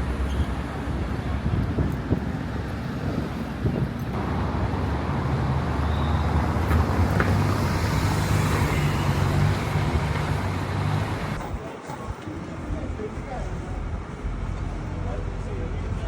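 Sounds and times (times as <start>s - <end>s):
road noise: 0.0s - 16.0s
vehicle engine humming: 4.1s - 11.4s.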